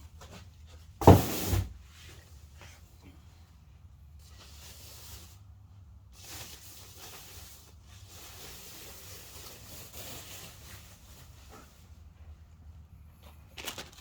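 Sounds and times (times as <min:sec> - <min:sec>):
rustling and scraping of parts: 0:13.1 - 0:14.0.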